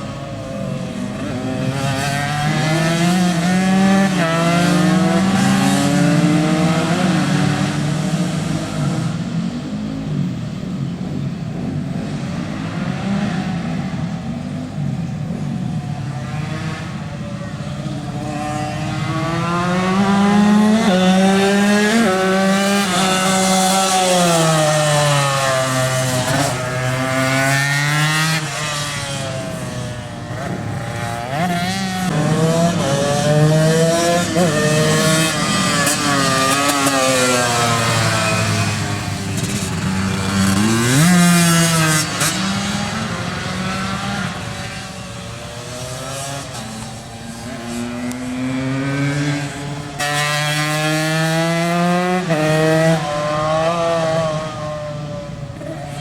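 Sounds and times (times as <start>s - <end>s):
two-stroke motorcycle engines racing: 0.0s - 56.0s.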